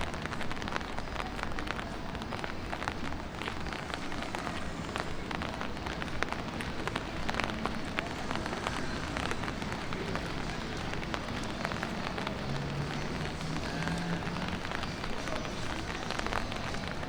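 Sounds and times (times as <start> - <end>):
light rain on street: 0.0 - 17.0
low city background: 0.0 - 17.0.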